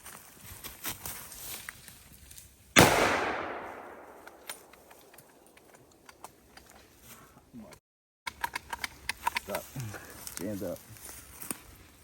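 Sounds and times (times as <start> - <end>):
rifle shot echoing: 2.8 - 5.1.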